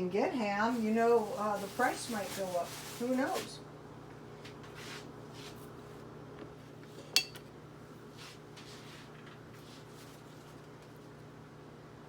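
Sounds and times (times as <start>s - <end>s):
faint handling rustles: 0.6s - 3.6s, 8.0s - 11.2s
tableware clinking: 7.2s - 7.4s.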